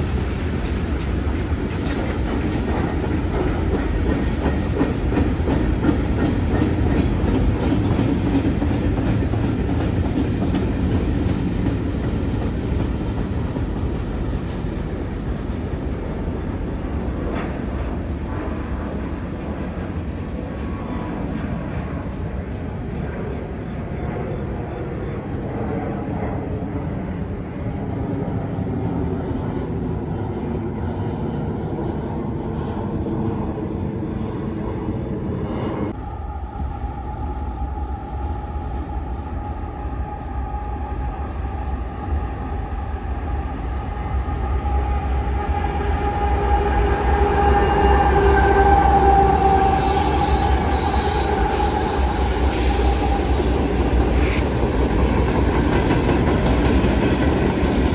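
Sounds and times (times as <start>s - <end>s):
train cars rumbling: 0.0s - 25.7s, 41.4s - 57.9s
train wheel squeal: 35.4s - 57.9s.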